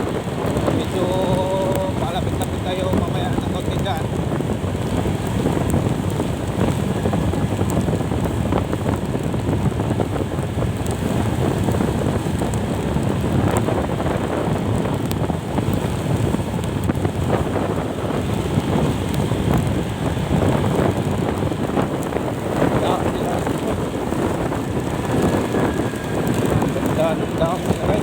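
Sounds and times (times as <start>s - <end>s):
road and engine noise: 0.0s - 28.0s
wind buffeting microphone: 0.0s - 28.0s.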